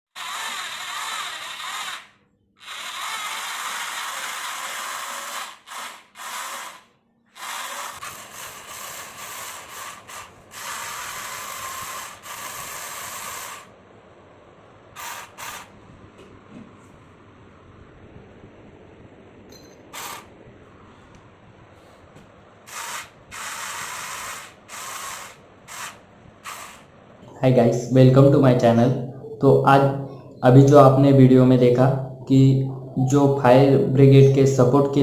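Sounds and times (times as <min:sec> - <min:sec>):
toy electric motors whirring: 0:00.1 - 0:13.7, 0:15.0 - 0:15.8, 0:19.9 - 0:20.3, 0:22.7 - 0:26.9.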